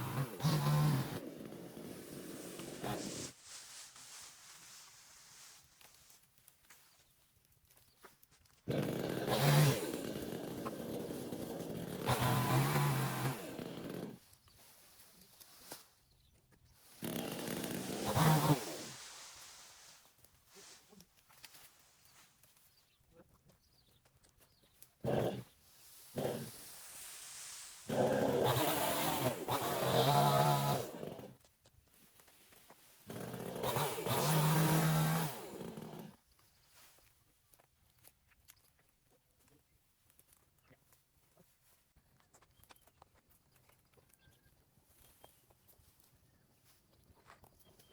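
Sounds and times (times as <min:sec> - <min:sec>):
chainsaw engine revving: 0:00.0 - 0:03.3, 0:08.7 - 0:14.2, 0:16.9 - 0:19.2, 0:25.0 - 0:26.8, 0:27.7 - 0:31.4, 0:33.0 - 0:36.2.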